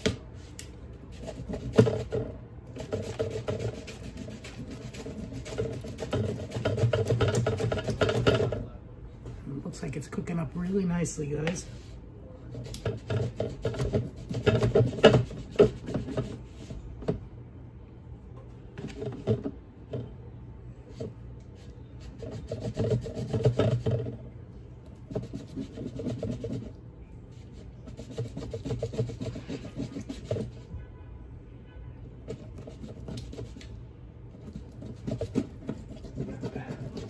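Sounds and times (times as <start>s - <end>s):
knife sawing through meat: 35.9s - 37.0s.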